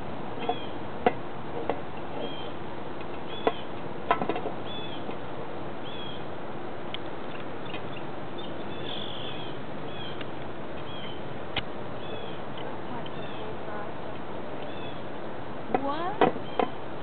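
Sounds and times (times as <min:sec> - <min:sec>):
steady outdoor hiss: 0:00.0 - 0:17.0
small bird chirping: 0:02.2 - 0:02.6, 0:03.2 - 0:03.7, 0:04.6 - 0:05.1, 0:05.8 - 0:06.3, 0:07.2 - 0:11.2, 0:12.0 - 0:13.5, 0:14.6 - 0:15.1.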